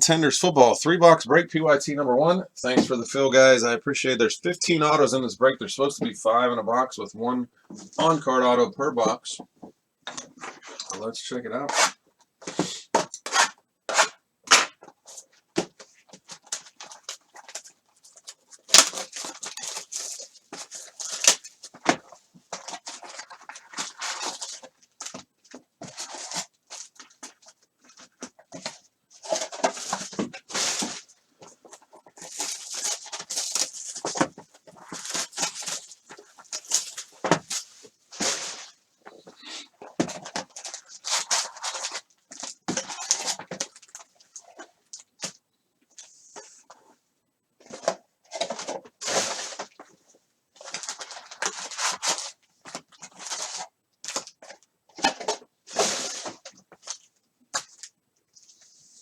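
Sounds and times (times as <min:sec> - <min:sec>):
plastic wrappers tearing and crinkling: 0:16.3 - 0:21.7, 0:22.6 - 0:25.2, 0:31.7 - 0:38.8, 0:40.3 - 0:44.1, 0:50.6 - 0:54.4.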